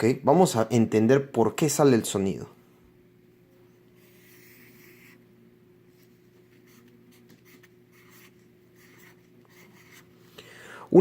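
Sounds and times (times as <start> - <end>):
faint steady hum: 0.0 - 11.0
pen scratching handwriting: 6.6 - 10.1.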